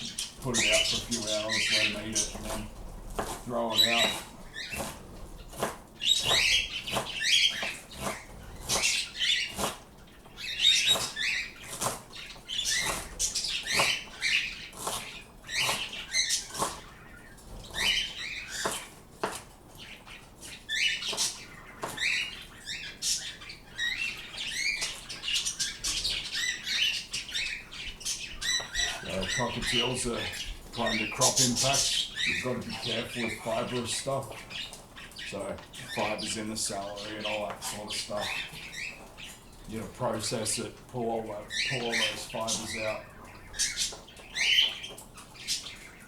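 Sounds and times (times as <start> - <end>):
birds chirping: 0.0 - 46.0.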